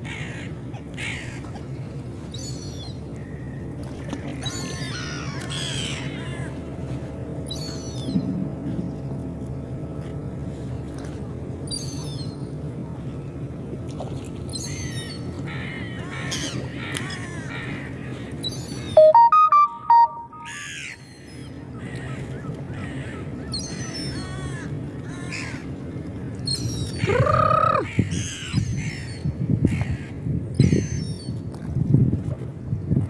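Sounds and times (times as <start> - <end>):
gulls calling: 18.5 - 20.9
electronic melody: 19.0 - 20.6.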